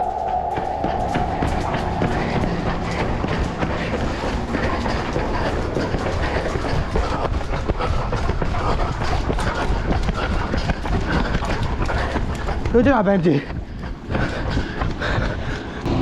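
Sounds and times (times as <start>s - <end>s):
wind rumble on microphone: 0.0s - 12.8s
running footfalls: 0.0s - 15.9s.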